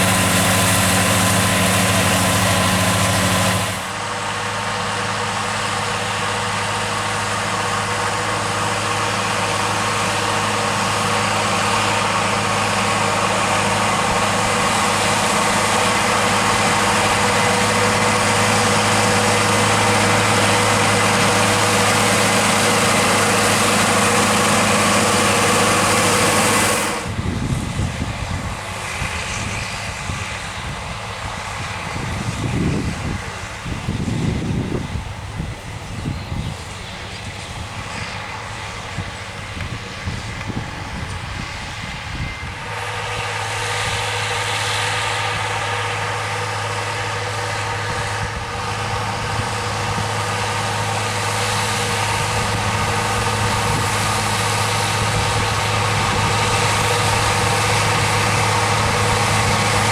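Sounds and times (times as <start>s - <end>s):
tractor engine running: 0.0s - 59.9s
wind on microphone: 27.0s - 42.7s, 51.6s - 59.9s.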